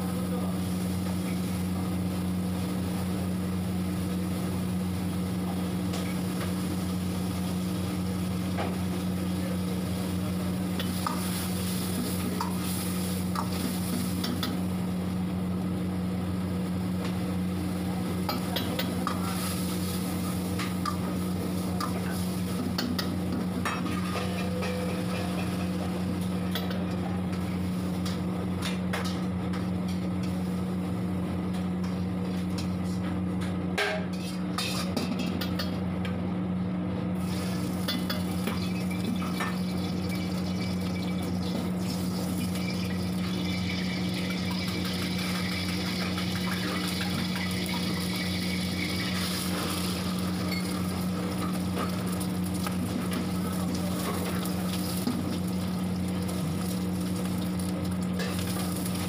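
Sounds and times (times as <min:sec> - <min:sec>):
low kitchen hum: 0:00.0 - 0:59.0
meat and onions sizzling in oil: 0:00.7 - 0:14.6, 0:37.2 - 0:59.0.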